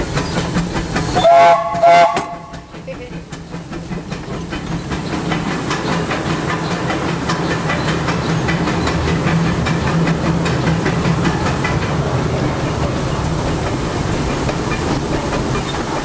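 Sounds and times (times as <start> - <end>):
rhythmic locomotive beat: 0.0 - 16.0
steam locomotive whistle blasts: 1.2 - 2.7.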